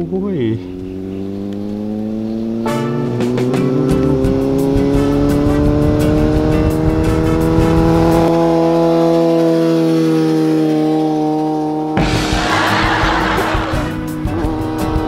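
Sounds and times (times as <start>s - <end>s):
motorcycle engine passing: 0.0s - 15.0s
background music with a beat: 2.7s - 6.8s, 12.0s - 15.0s.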